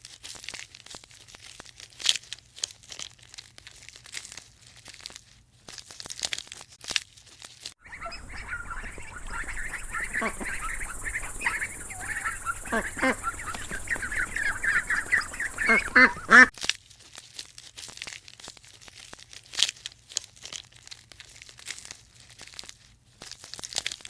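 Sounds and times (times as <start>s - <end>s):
ducks and geese honking: 7.8s - 16.5s.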